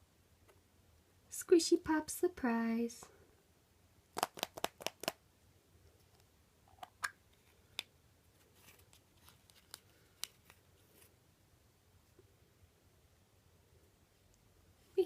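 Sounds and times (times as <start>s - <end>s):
faint rustling: 8.3s - 11.2s.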